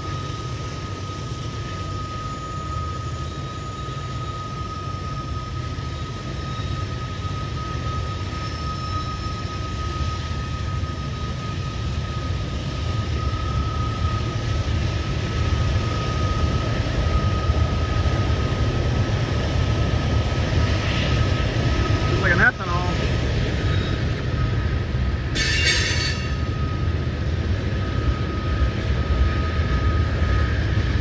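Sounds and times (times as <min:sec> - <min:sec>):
freight train wheels rumbling: 0:00.0 - 0:31.0
thin high tone: 0:25.3 - 0:26.6.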